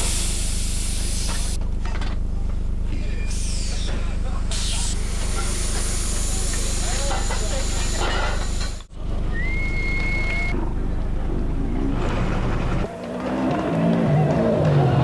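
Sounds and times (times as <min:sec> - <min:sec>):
steady low hum: 0:00.0 - 0:12.9
high whistle-like tone: 0:09.3 - 0:10.5
rally car engine revving: 0:10.7 - 0:15.0.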